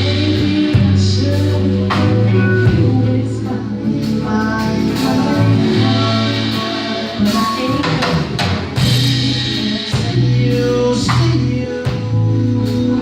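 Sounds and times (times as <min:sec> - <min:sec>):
bass line: 0:00.0 - 0:13.0
guitar: 0:00.0 - 0:13.0
sustained chords: 0:00.0 - 0:13.0
drum kit hits: 0:04.5 - 0:12.2.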